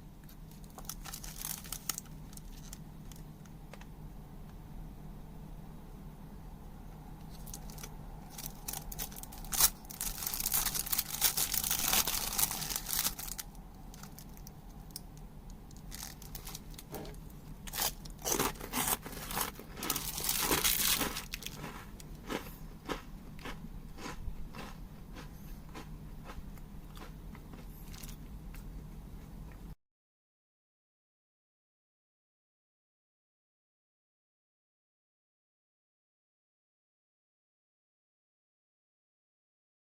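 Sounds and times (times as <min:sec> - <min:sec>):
crunching of rice crackers: 0:00.2 - 0:03.4, 0:07.2 - 0:29.5
plastic wrapper crinkling: 0:00.5 - 0:03.2, 0:07.2 - 0:22.2.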